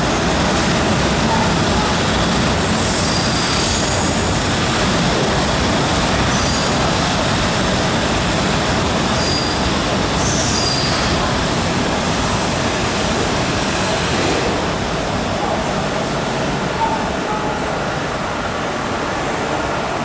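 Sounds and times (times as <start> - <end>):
train rumbling into station: 0.0 - 20.0.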